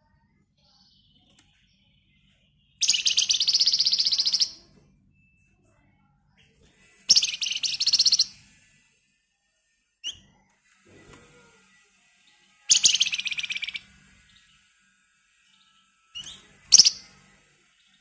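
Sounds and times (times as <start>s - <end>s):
songbird rattling trills: 2.8s - 4.6s, 7.1s - 8.4s, 12.7s - 14.3s, 16.2s - 17.2s.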